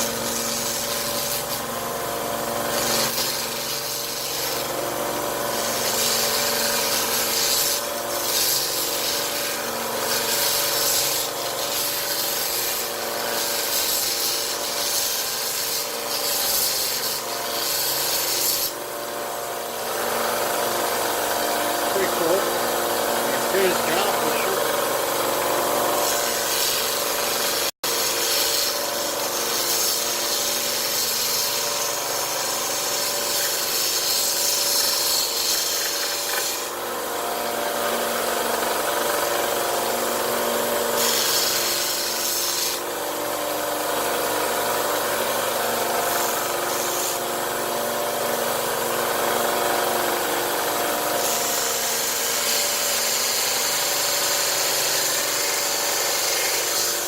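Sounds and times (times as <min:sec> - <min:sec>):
gritty rasp of wood sanding: 0:02.6 - 0:04.7, 0:05.5 - 0:18.8, 0:26.0 - 0:36.7, 0:41.0 - 0:42.8, 0:51.2 - 0:57.0.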